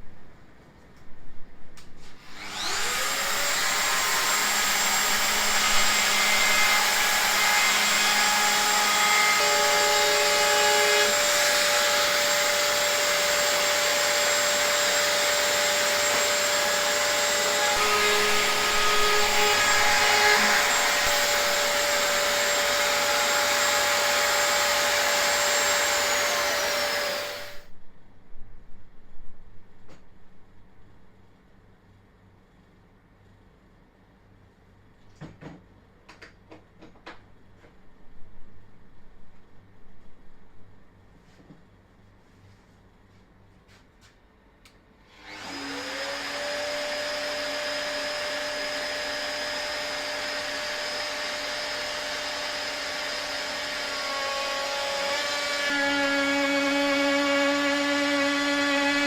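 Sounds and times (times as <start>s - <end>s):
electric router whining: 2.2s - 27.7s, 45.1s - 59.0s.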